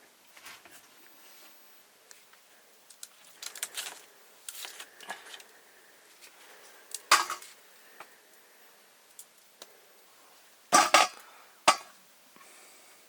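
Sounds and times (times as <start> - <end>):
utensils clattering: 7.1 - 7.4, 10.8 - 11.9
cooking utensils knocking and scraping: 7.1 - 7.5, 10.8 - 11.9.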